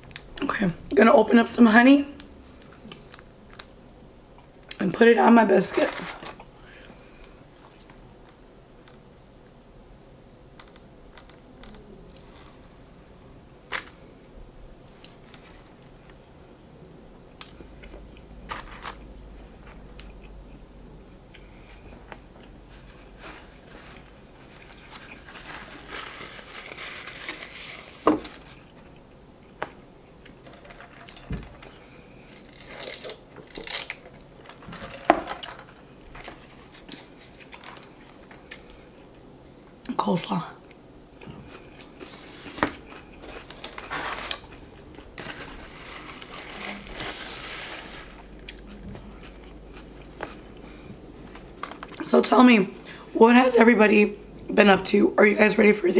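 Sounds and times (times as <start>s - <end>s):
rustling: 21.5s - 38.9s, 41.2s - 52.0s
person chewing: 41.2s - 43.8s, 48.4s - 52.0s.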